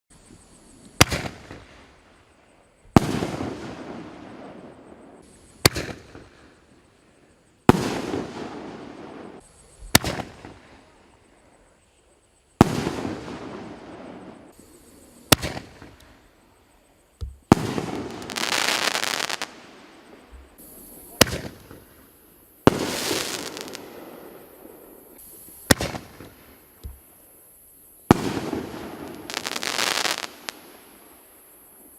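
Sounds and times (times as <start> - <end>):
firework crackle: 3.0 - 6.6, 12.6 - 16.4, 17.2 - 27.4, 28.0 - 31.9
firework bangs: 7.7 - 10.6, 15.2 - 16.1, 17.2 - 27.1, 28.0 - 31.2.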